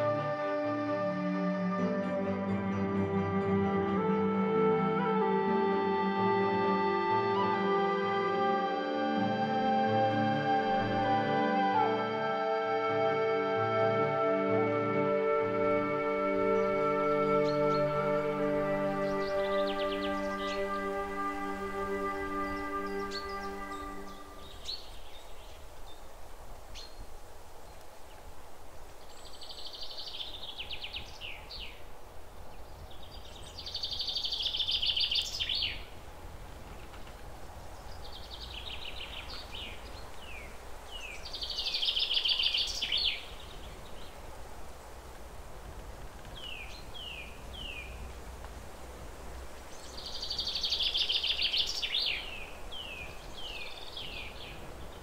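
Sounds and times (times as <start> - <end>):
songbird singing buzzy trills: 15.2 - 28.2, 29.0 - 36.0, 36.8 - 44.4, 46.3 - 48.2, 49.6 - 55.0
low outdoor rumble: 35.7 - 41.3.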